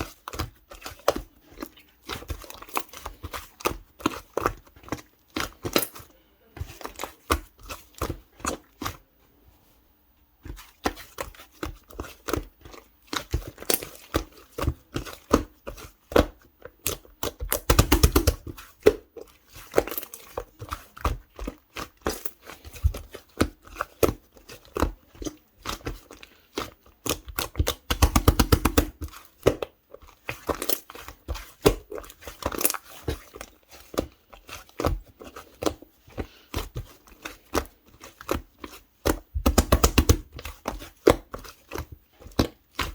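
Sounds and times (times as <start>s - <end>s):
slime squished by hand: 10.4s - 42.9s.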